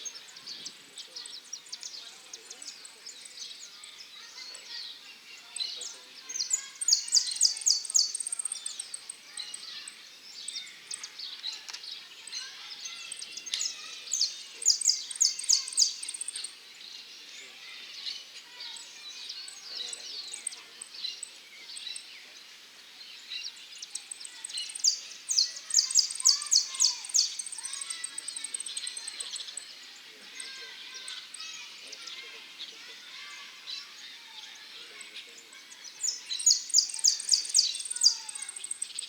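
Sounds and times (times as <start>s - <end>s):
finches chirping: 5.4s - 11.2s, 12.0s - 22.2s, 23.2s - 32.9s, 34.0s - 39.0s
finch singing rapid notes: 24.6s - 29.5s, 36.0s - 39.0s.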